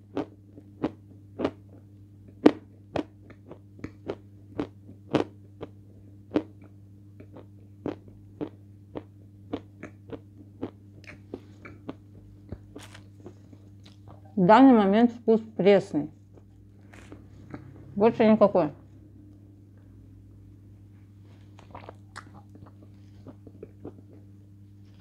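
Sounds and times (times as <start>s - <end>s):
low steady hum: 0.0s - 25.0s
chalk crunching between teeth: 12.7s - 14.0s.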